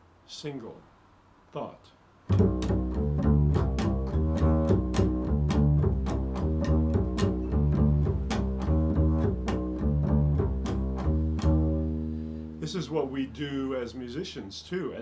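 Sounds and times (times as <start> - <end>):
low plucked string notes: 2.3 - 13.8.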